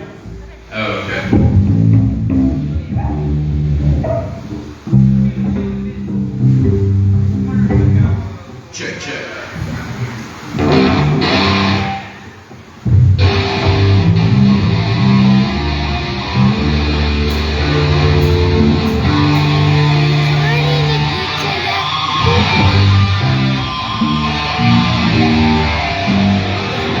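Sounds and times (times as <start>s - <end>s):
loud electric guitar music: 10.6s - 12.2s, 12.9s - 27.0s.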